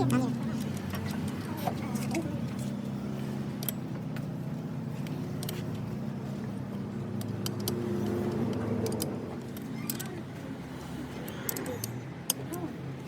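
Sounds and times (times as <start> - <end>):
engine humming: 0.0 - 13.0
light metallic clicks: 7.1 - 10.2.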